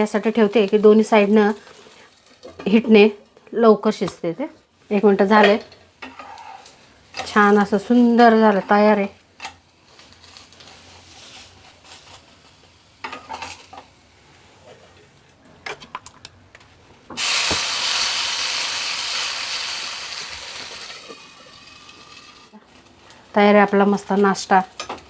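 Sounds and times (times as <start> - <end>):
oil sizzling on hot pan: 0.0 - 2.8, 17.2 - 23.3
utensils scraping a pan: 6.0 - 7.5.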